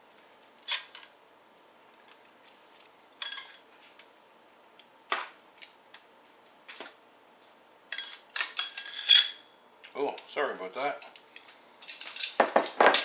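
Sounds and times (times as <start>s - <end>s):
utensils clinking against dishes: 3.2s - 3.6s, 7.9s - 9.4s, 11.0s - 13.0s.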